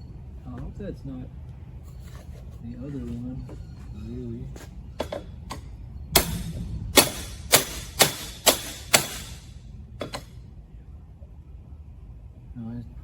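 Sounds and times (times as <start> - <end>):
hammer blows on metal: 5.0 - 10.3.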